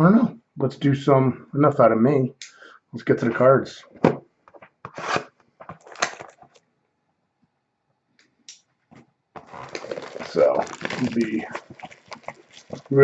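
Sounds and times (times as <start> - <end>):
packaging rustling and scraping: 4.9 - 6.6, 9.4 - 13.0.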